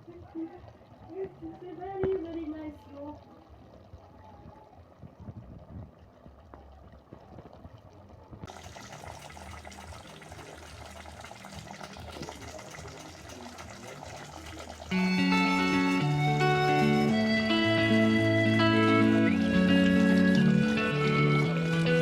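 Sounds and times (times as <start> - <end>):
water filling a container: 0.0 - 22.0
guitar music: 14.9 - 22.0.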